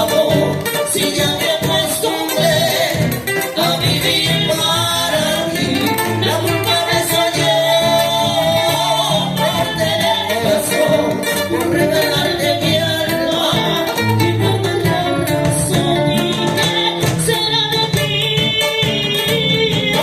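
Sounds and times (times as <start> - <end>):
percussion: 0.0 - 20.0
person singing: 0.0 - 20.0
plucked guitar: 0.0 - 20.0.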